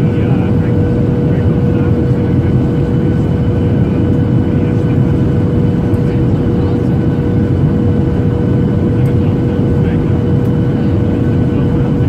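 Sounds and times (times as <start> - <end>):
jet engine rumble: 0.0 - 12.0
steady hum: 0.0 - 12.0.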